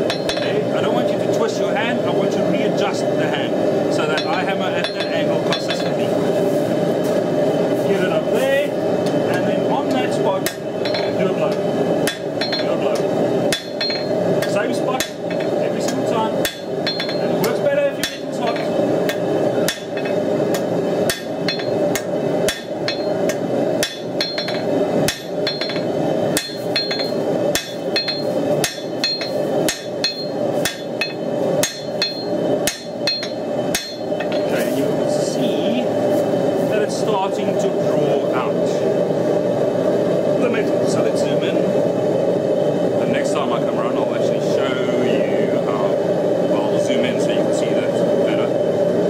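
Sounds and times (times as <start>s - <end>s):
hammer striking steel on anvil: 0.0s - 0.6s, 4.2s - 6.0s, 10.4s - 11.2s, 12.0s - 34.6s
steady background hum: 0.0s - 49.0s.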